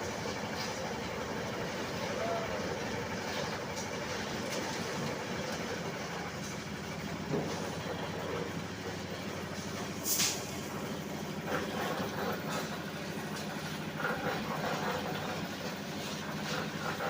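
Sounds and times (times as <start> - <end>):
diesel engine running: 0.0 - 17.0
short hiss: 10.0 - 10.5.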